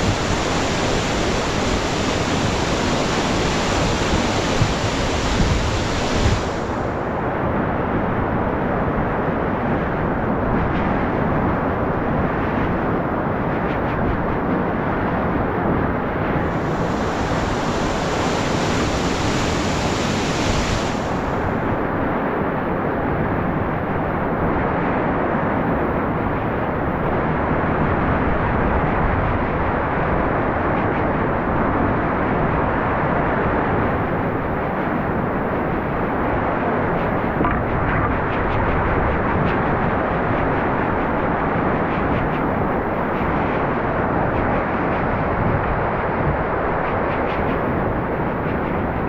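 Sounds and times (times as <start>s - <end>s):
river whitewater rushing: 0.0s - 7.0s, 16.4s - 22.0s.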